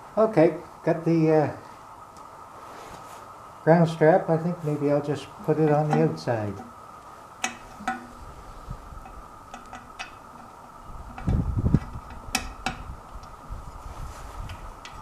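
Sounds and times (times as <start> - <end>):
faint steady hum: 0.0 - 15.0
metal clicks of hand tools: 7.4 - 8.1, 9.0 - 10.5.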